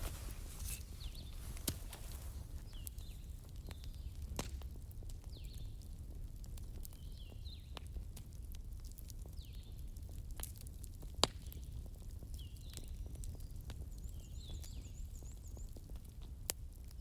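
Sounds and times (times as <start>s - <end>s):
campfire crackling: 0.0s - 4.8s.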